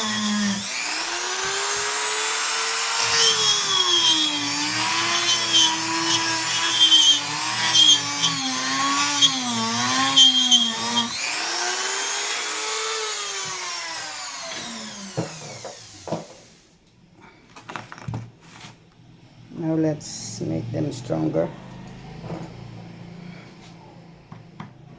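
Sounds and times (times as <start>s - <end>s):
electric drill running into wood: 0.0s - 16.6s.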